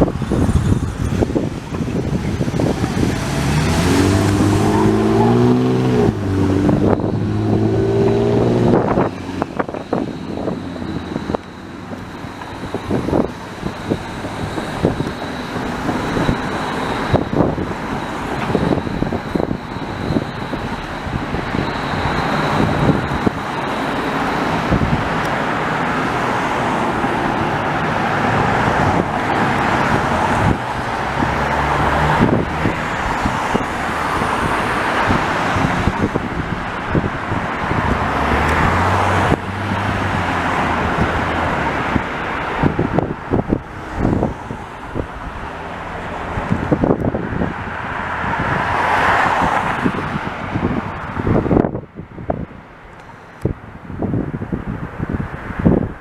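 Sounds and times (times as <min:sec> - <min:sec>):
vehicle accelerating: 0:00.0 - 0:51.8
steady traffic rush: 0:00.0 - 0:56.0
vehicles passing: 0:00.0 - 0:56.0
thin high whine: 0:06.8 - 0:27.1.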